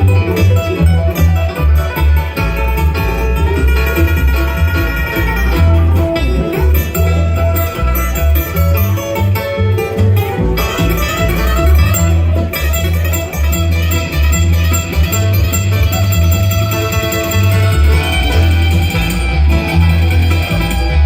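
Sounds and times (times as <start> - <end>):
banjo: 0.0 - 21.0
bass line: 0.0 - 21.0
picked acoustic guitar: 0.0 - 21.0.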